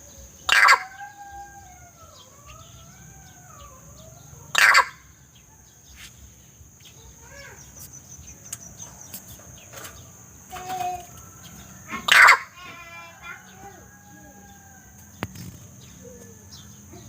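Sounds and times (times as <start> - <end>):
soft bird calls: 0.0 - 17.0
bird screeching: 0.5 - 5.2, 11.7 - 14.8.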